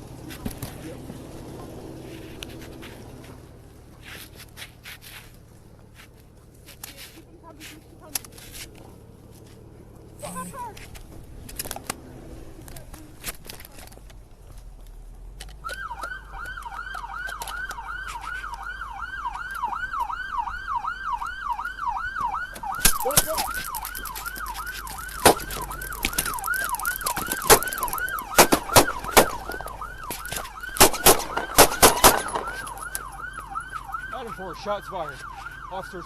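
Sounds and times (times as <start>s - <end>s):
police siren yelping: 10.2s - 10.8s, 15.6s - 36.0s
gunshots: 25.2s - 25.6s, 27.4s - 29.9s, 30.7s - 32.8s.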